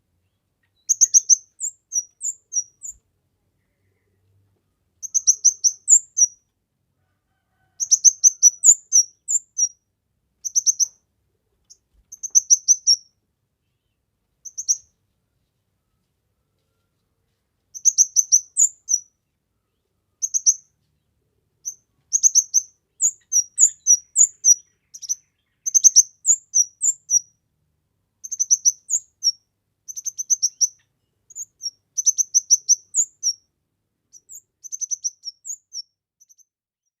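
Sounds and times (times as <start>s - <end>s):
bird chirping and trilling: 0.8s - 3.0s, 5.0s - 6.4s, 7.8s - 9.8s, 10.4s - 11.0s, 12.1s - 13.1s, 14.4s - 14.9s, 17.8s - 19.1s, 20.2s - 20.6s, 21.6s - 27.3s, 28.2s - 33.4s, 34.1s - 36.5s.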